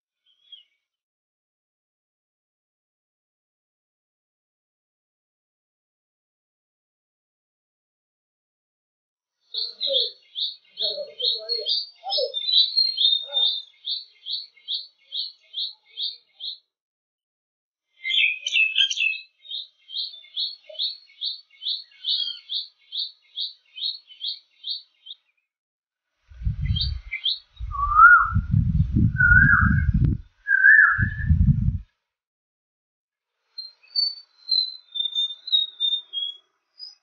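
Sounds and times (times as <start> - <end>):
songbird high chirps: 0.2 - 0.8, 9.5 - 16.7, 18.0 - 25.4, 26.4 - 31.7, 33.6 - 37.0
lower whistled bird notes: 9.5 - 16.6, 18.0 - 25.2, 26.4 - 31.7, 33.6 - 37.0
low rumble: 26.4 - 30.3, 31.0 - 31.8.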